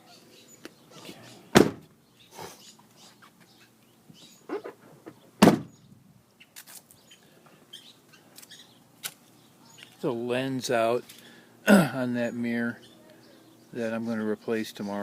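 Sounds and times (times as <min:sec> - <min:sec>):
truck door shutting: 0:01.5 - 0:01.9, 0:05.4 - 0:05.8.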